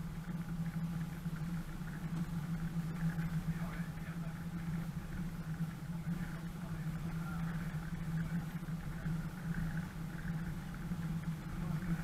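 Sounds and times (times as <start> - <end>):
off-road vehicle engine humming: 0.0 - 12.0.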